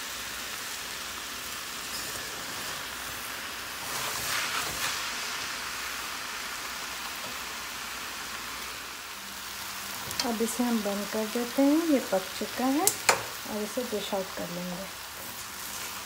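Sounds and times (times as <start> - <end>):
vegetables sizzling in a pan: 0.0 - 16.0
spatula stirring in a pan: 1.9 - 5.5, 12.8 - 16.0.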